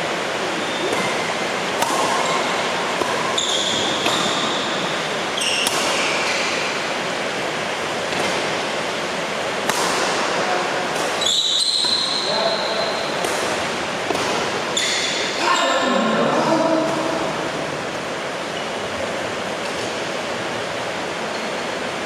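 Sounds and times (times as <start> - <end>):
shoes squeaking on court: 0.6 - 1.2, 2.2 - 6.6, 11.1 - 13.1, 14.7 - 15.7
racket hitting shuttlecock: 0.8 - 6.6, 8.1 - 8.6, 9.6 - 12.2, 13.1 - 15.3.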